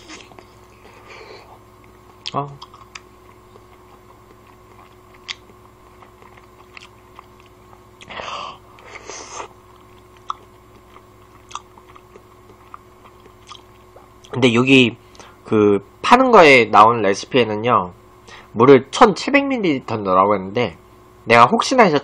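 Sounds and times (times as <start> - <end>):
person chewing: 0.0 - 14.4.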